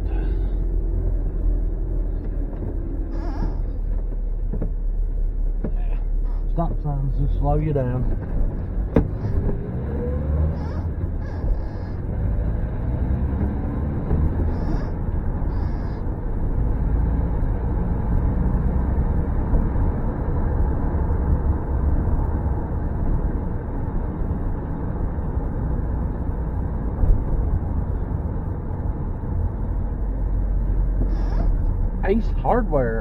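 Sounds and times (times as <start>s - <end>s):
car road and engine noise: 0.0s - 33.0s
car bumps: 2.2s - 4.9s, 8.1s - 9.5s.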